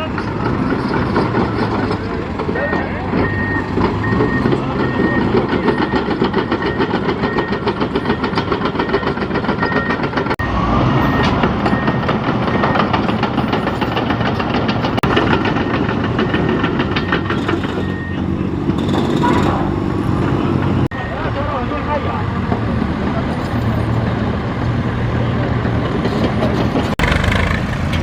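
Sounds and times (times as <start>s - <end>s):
tractor engine knocking: 0.0s - 10.4s, 11.4s - 20.9s
reversing beeper: 2.5s - 13.0s, 20.9s - 21.7s.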